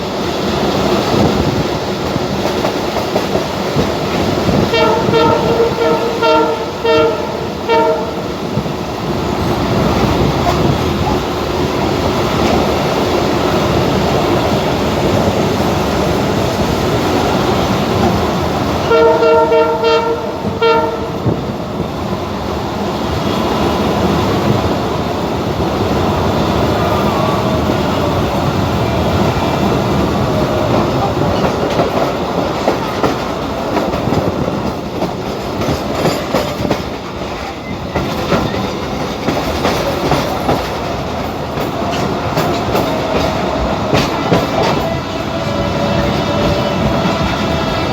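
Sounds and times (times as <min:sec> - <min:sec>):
train wheels rumbling on rails: 0:00.0 - 0:47.9
train horn blasts: 0:04.5 - 0:08.4, 0:18.8 - 0:21.4.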